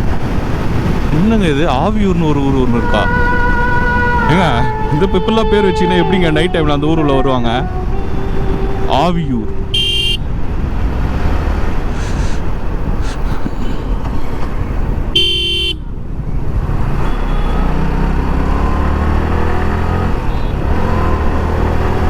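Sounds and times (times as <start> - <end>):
motorcycle engine: 0.0 - 5.7, 6.5 - 13.0, 13.6 - 22.0
wind rumble: 0.0 - 15.2
vehicle horn: 2.9 - 10.4, 15.1 - 15.9, 17.0 - 18.0, 20.1 - 21.0.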